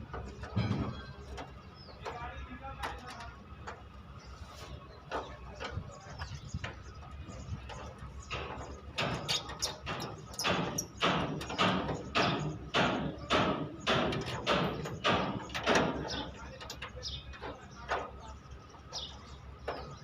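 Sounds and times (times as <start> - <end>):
hammer blows on sheet metal: 8.3 - 16.5.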